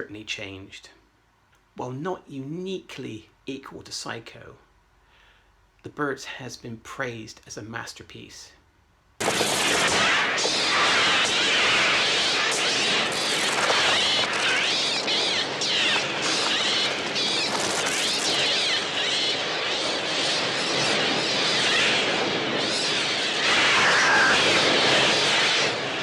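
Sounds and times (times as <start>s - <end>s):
flock of birds shrieking and cawing: 9.9s - 20.0s, 22.8s - 25.8s.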